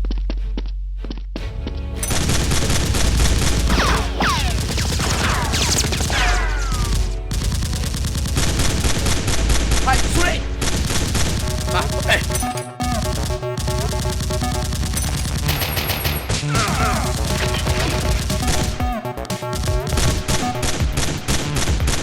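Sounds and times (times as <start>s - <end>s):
background music with droning bass: 0.0s - 22.0s
automatic gunfire: 2.1s - 18.8s.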